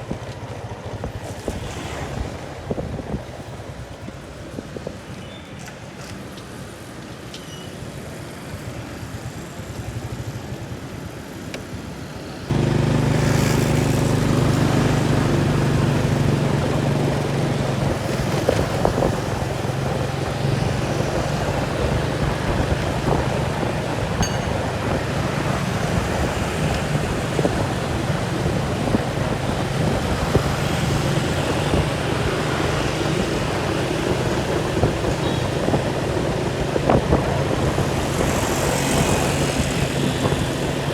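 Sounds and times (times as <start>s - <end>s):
engine running steadily: 12.5s - 40.9s
rumbling wind: 12.5s - 40.9s.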